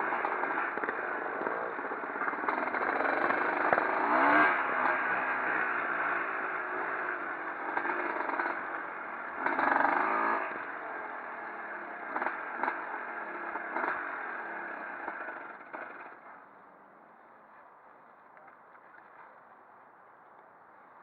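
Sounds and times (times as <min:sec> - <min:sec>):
motorcycle engines revving: 0:00.0 - 0:16.7.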